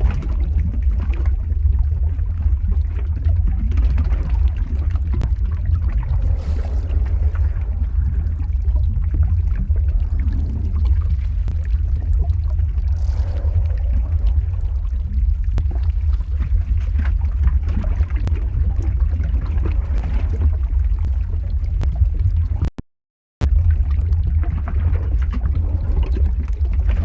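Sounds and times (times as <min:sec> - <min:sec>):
deep rumble: 0:00.0 - 0:22.7, 0:23.4 - 0:27.0
faint crackles: 0:00.0 - 0:22.7
pouring trickling: 0:04.3 - 0:17.4.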